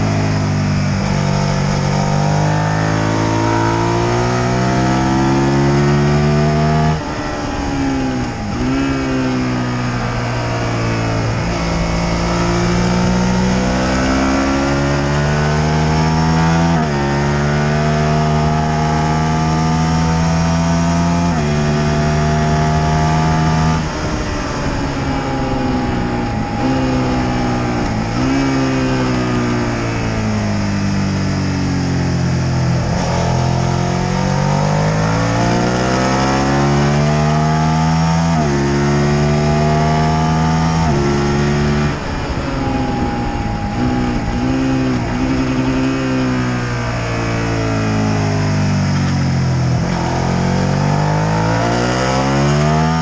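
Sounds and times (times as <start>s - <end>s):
motorcycle engine at speed: 0.0s - 53.0s
wind rush on microphone: 21.3s - 35.7s, 40.4s - 50.8s.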